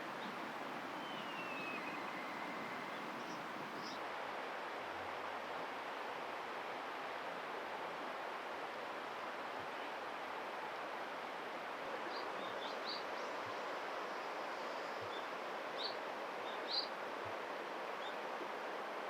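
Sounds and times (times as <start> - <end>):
faint high chirps: 1.0 - 4.0.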